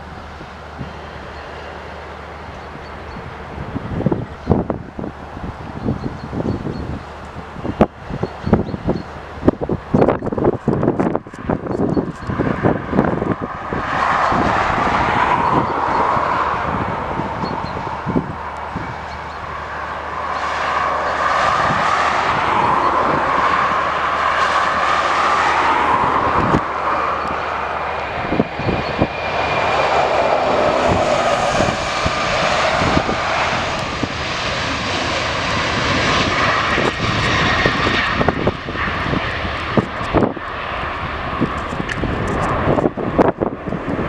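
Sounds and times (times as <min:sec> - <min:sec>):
airliner engines passing: 0:00.0 - 0:44.0.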